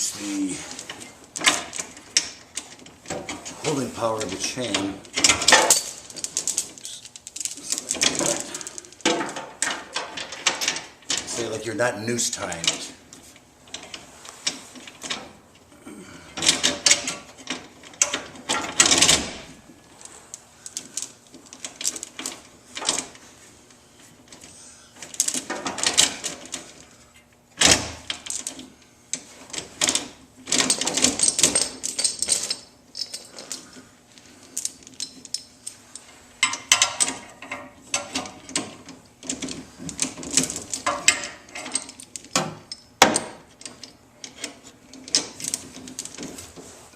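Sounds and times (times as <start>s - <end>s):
steel chain clinking and rattling: 4.4s - 11.3s, 29.8s - 46.4s.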